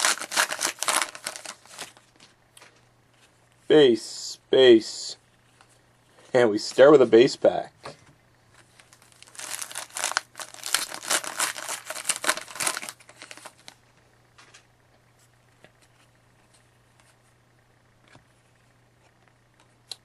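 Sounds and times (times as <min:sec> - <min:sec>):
plastic wrapper crinkling and tearing: 0:00.0 - 0:02.1, 0:08.6 - 0:13.8.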